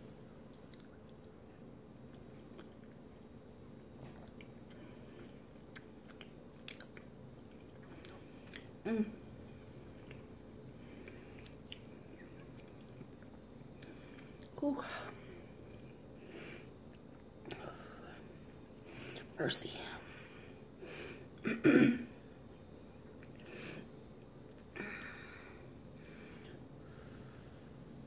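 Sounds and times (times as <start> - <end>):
person chewing: 0.5 - 3.2, 4.0 - 8.8, 9.8 - 14.6, 22.6 - 23.6
wet mouth clicks and smacks: 5.2 - 8.7.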